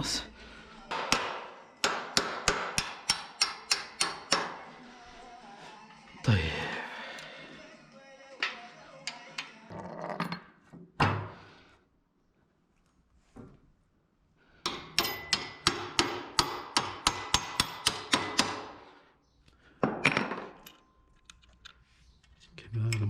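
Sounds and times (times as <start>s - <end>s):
hammer striking metal: 0.9s - 4.7s, 14.6s - 18.8s.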